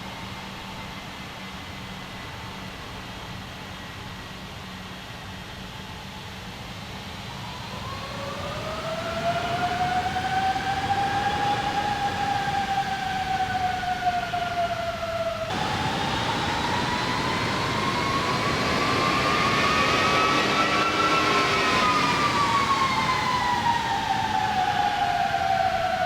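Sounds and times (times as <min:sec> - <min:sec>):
jet noise rumble: 0:06.8 - 0:26.0
jet engines spooling up: 0:06.9 - 0:26.0.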